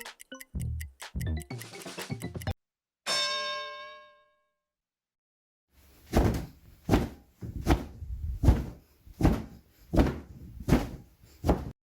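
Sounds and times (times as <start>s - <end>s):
heavy thumps: 6.0s - 11.7s.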